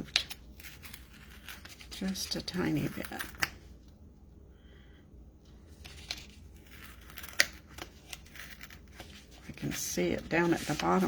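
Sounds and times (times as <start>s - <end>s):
paper rustling and scraping: 0.0s - 3.4s, 5.7s - 11.0s.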